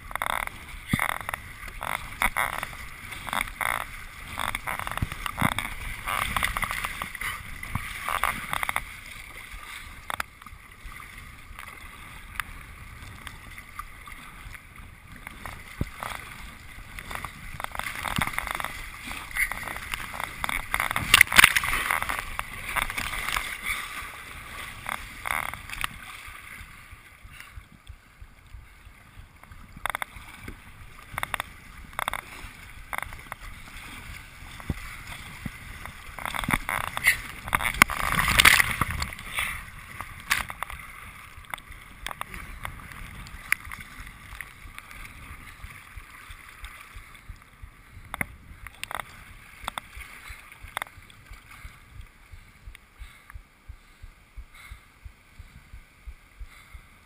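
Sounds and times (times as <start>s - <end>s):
paddle strokes splashing: 0.0s - 57.0s
water gurgling along hull: 0.0s - 57.0s.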